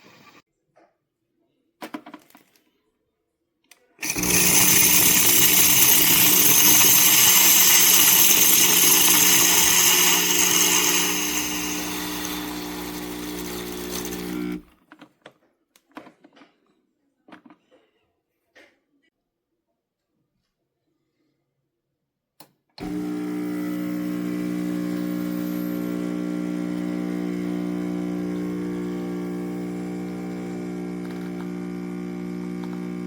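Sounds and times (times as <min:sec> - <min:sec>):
steam wand hissing: 0:04.0 - 0:14.6
machine hum: 0:04.0 - 0:14.7, 0:22.8 - 0:33.0.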